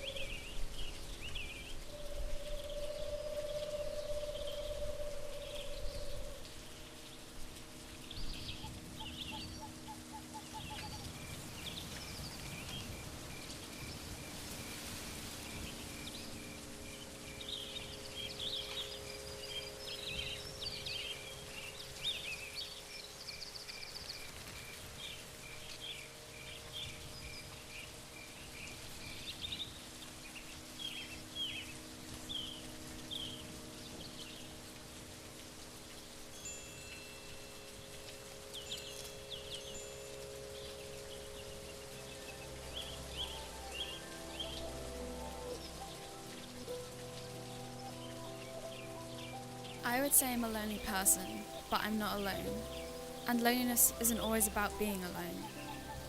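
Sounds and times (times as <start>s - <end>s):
outdoor background noise: 0.0s - 56.0s
birds chirping and calling: 8.2s - 12.9s.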